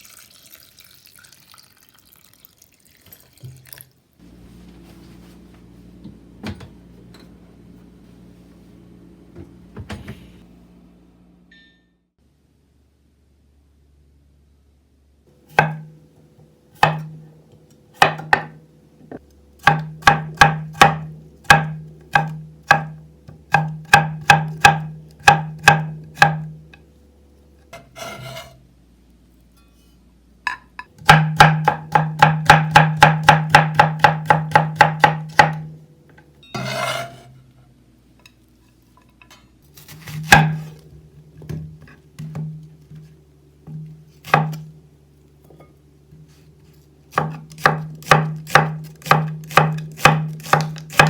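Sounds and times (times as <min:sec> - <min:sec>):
knife chopping on wooden board: 0:15.6 - 0:15.9, 0:16.8 - 0:17.2, 0:18.0 - 0:18.6, 0:19.6 - 0:26.5, 0:31.0 - 0:35.7, 0:39.8 - 0:40.8, 0:43.7 - 0:44.7, 0:47.1 - 0:51.0
food scraping across board: 0:27.8 - 0:28.6, 0:36.6 - 0:37.4.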